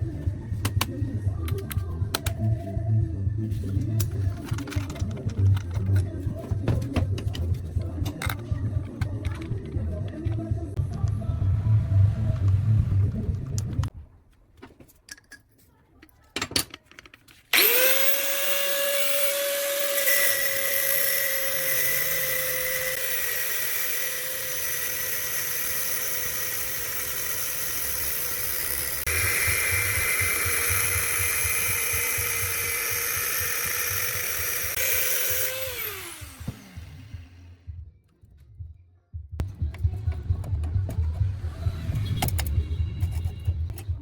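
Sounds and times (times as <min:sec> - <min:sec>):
electric power tool motor whining: 0:17.5 - 0:37.6.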